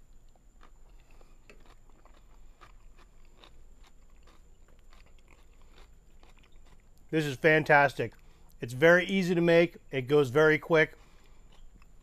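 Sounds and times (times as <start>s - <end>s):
person chewing crunchy food: 0.0s - 7.1s, 11.0s - 12.0s.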